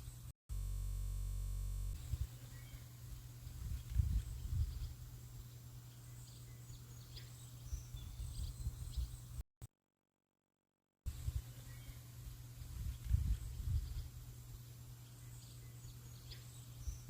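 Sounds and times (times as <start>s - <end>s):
wind rumbling on microphone: 2.0s - 5.6s, 7.6s - 9.4s, 12.2s - 14.4s
faint bird chirps: 2.0s - 9.4s.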